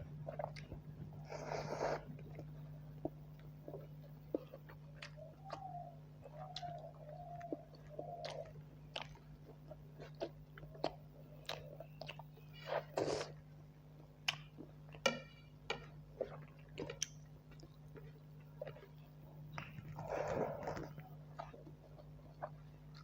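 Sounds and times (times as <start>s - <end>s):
mouth chewing food: 0.0s - 23.0s.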